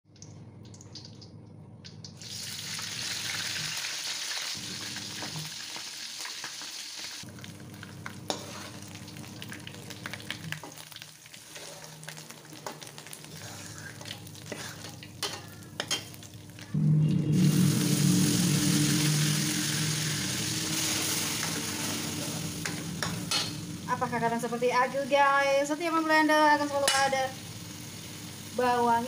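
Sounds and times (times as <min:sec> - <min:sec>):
food sizzling in hot oil: 0:02.2 - 0:29.0
spatula scraping a wok: 0:08.3 - 0:09.0, 0:11.3 - 0:12.0, 0:12.6 - 0:16.1.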